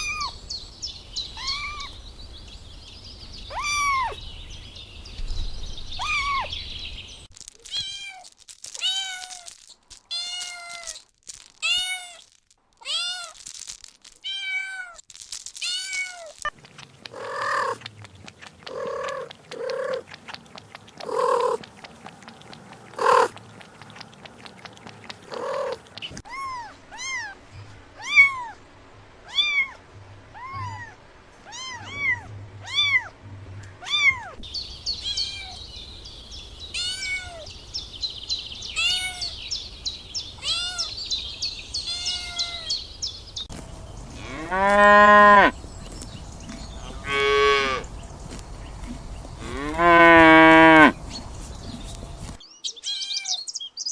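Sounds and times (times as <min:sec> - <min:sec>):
kittens meowing: 0:01.4 - 0:01.9, 0:36.7 - 0:37.5, 0:38.8 - 0:39.3, 0:40.4 - 0:40.9, 0:41.8 - 0:42.7.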